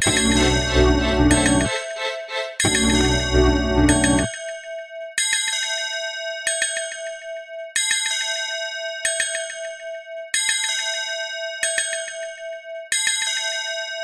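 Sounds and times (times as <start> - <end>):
held mid-pitched tone: 0.0 - 4.3
bell-like chimes: 0.0 - 4.5.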